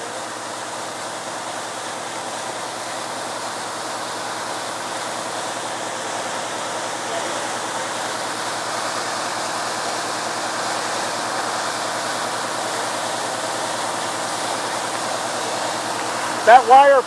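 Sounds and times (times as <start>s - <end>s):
water gushing from fire hydrant: 0.0s - 17.0s.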